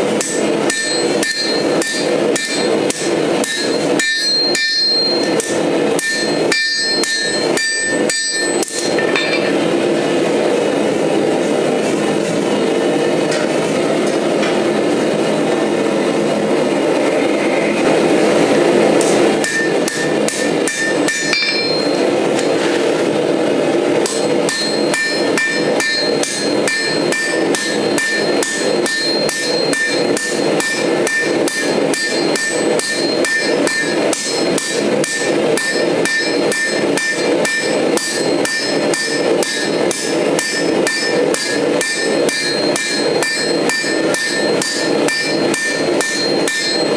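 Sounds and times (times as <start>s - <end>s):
hammer striking steel on anvil: 0.0s - 9.9s, 18.9s - 22.9s, 24.0s - 46.9s
forge roaring: 0.1s - 46.9s.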